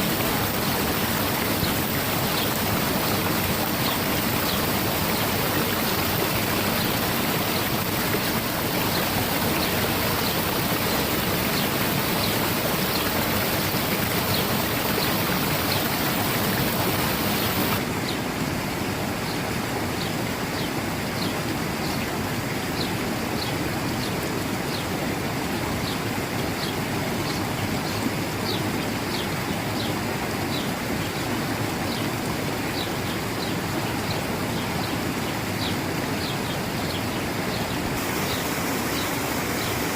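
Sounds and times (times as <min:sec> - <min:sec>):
water flowing: 0:00.0 - 0:39.9.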